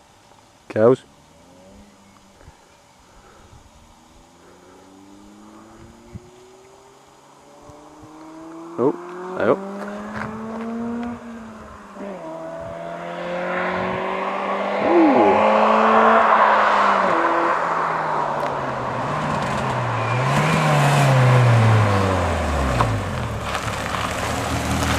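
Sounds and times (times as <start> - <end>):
car engine and exhaust running: 0.0 - 15.4, 16.9 - 24.9.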